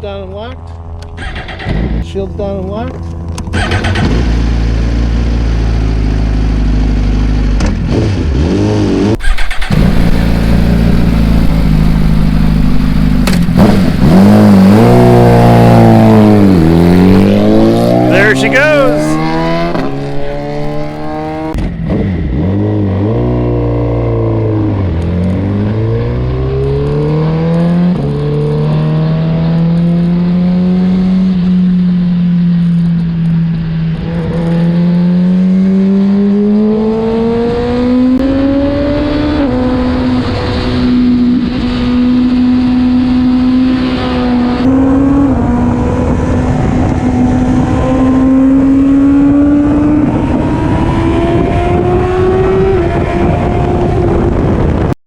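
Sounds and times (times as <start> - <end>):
motorcycle engine running: 9.2 - 18.4, 19.1 - 21.6.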